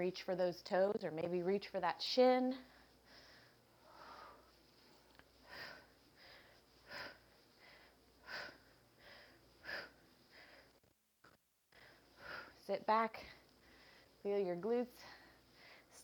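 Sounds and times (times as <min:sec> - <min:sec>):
person breathing heavily: 0:02.6 - 0:10.8, 0:11.7 - 0:14.2.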